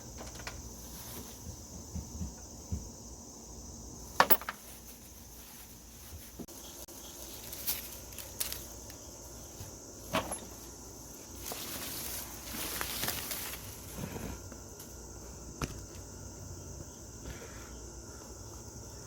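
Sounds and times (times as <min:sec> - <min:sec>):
high insect chorus: 0:00.0 - 0:19.0.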